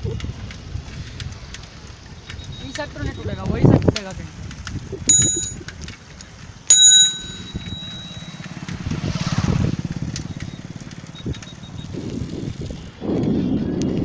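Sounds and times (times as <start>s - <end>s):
bicycle bell ringing: 5.1s - 5.7s, 6.7s - 8.6s
passing vehicle rattling: 5.9s - 13.6s.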